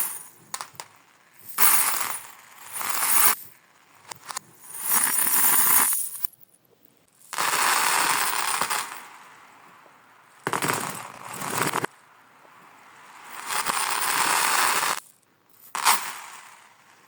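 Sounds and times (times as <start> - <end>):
marbles rolling along track: 10.4 - 11.9.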